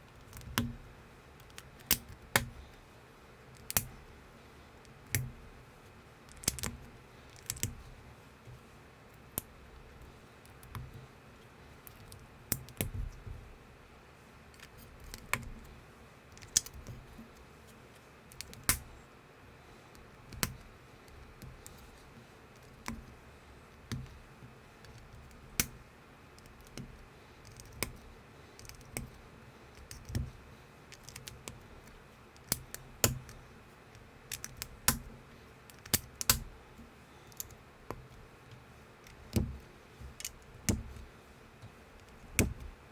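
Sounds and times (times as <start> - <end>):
plastic bricks snapping together: 34.3 - 35.1.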